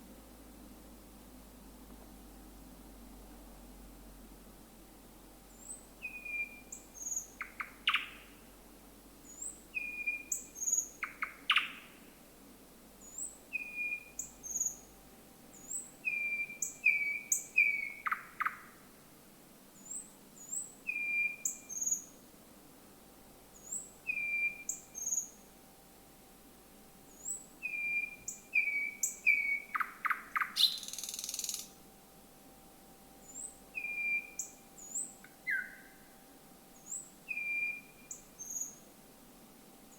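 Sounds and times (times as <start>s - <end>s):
bird singing: 5.5s - 8.4s, 9.2s - 12.0s, 13.0s - 14.9s, 15.5s - 18.7s, 19.8s - 22.2s, 23.5s - 25.5s, 27.1s - 31.8s, 33.2s - 36.2s, 36.8s - 38.9s.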